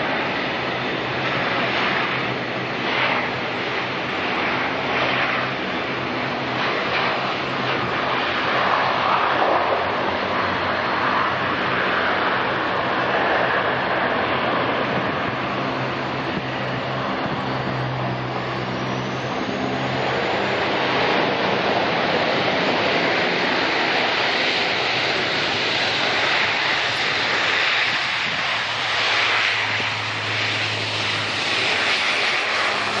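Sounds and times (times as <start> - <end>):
jet engines rushing: 0.0 - 33.0
low hum: 13.8 - 33.0.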